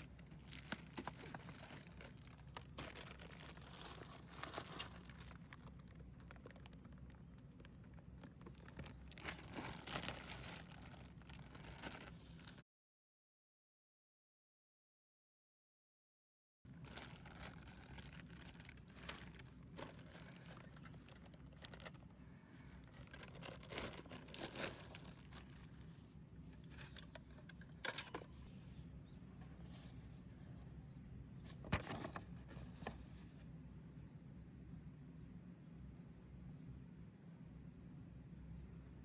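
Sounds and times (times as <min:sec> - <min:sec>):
material rustling and tearing: 0:00.0 - 0:07.2, 0:08.4 - 0:12.6, 0:16.8 - 0:22.0, 0:22.8 - 0:25.8
low steady hum: 0:00.0 - 0:12.6, 0:16.7 - 0:39.0.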